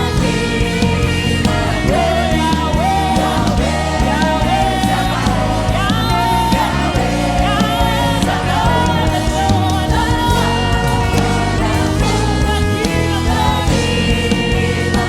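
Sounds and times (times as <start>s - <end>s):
full band with steady bass: 0.0s - 15.0s
lead and backing singers: 0.0s - 15.0s.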